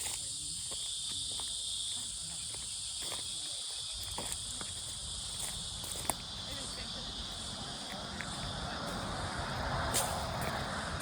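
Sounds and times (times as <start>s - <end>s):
insects buzzing: 0.0s - 11.0s
light footsteps: 0.0s - 11.0s.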